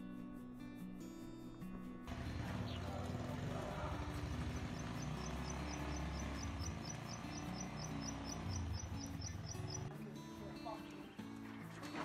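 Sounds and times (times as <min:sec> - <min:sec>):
small bird chirping: 0:02.5 - 0:10.0.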